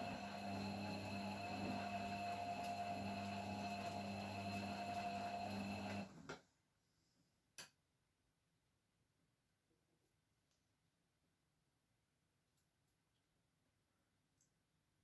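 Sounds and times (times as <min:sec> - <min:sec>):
washing machine humming: 0:00.0 - 0:06.2.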